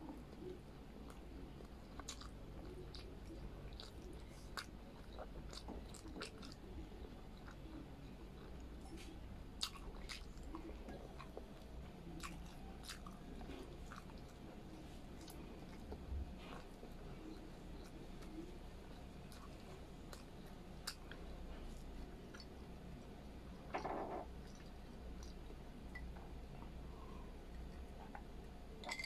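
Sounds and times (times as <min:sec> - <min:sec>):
faint low hum: 0:00.0 - 0:29.0.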